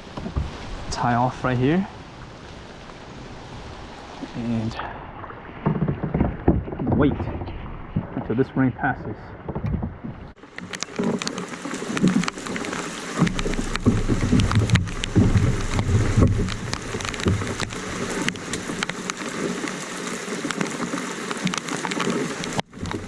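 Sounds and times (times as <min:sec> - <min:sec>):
low rumble: 0:00.0 - 0:05.6, 0:12.3 - 0:18.8
heavy rain falling: 0:00.0 - 0:08.4, 0:10.3 - 0:23.0.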